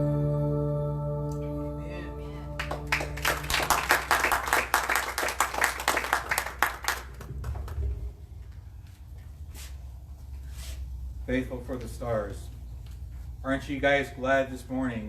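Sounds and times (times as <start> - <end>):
worship song held chord: 0.0 - 4.4
congregation applauding: 2.6 - 8.0.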